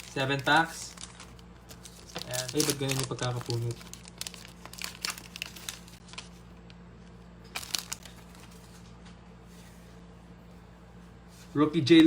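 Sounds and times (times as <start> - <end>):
plastic wrapper crinkling: 0.0 - 6.8, 7.4 - 8.8
steady low hum: 0.0 - 12.0.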